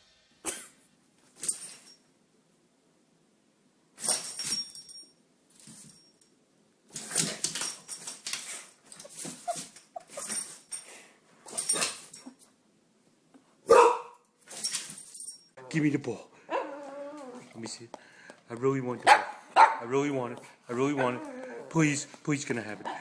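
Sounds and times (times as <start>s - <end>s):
dog whining: 16.5s - 17.6s, 20.9s - 21.8s.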